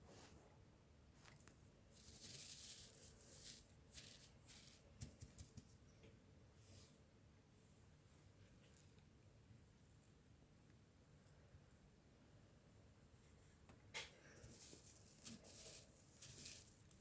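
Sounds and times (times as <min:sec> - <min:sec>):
faint rustling: 0:01.2 - 0:05.8, 0:13.2 - 0:17.0.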